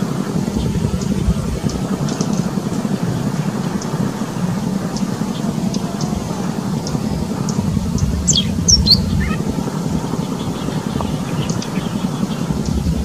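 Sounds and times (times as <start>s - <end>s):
steady low rumble: 0.0s - 13.0s
songbird chipping: 3.2s - 13.0s
descending whistled bird notes: 4.6s - 12.8s.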